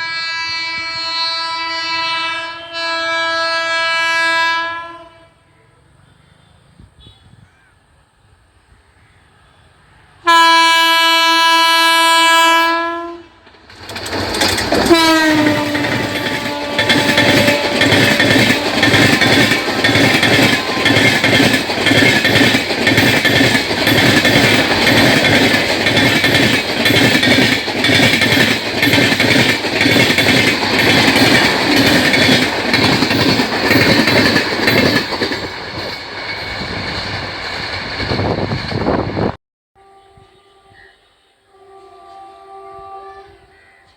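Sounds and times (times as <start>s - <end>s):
train horn: 0.0s - 7.4s, 10.2s - 13.4s, 14.8s - 21.6s, 39.8s - 43.9s
train wheels clattering over rails: 13.4s - 39.4s.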